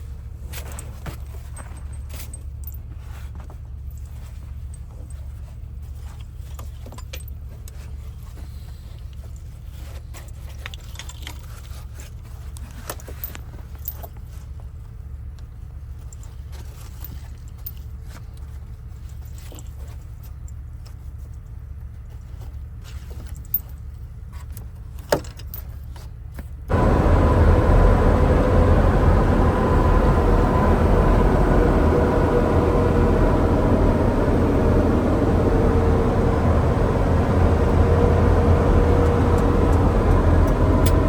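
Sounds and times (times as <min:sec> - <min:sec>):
diesel engine droning: 0:26.7 - 0:41.0.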